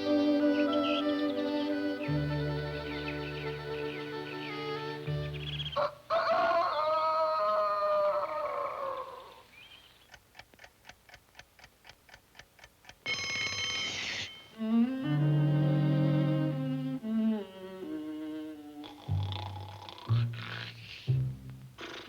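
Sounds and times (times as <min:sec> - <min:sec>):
orchestral music: 0:00.0 - 0:05.8, 0:14.6 - 0:18.6
clock ticking: 0:10.0 - 0:15.4
alarm clock bell ringing: 0:13.0 - 0:14.7.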